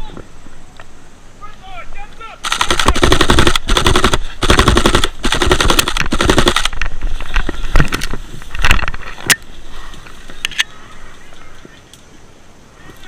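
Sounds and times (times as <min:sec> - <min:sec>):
airsoft guns firing: 0:02.4 - 0:06.8.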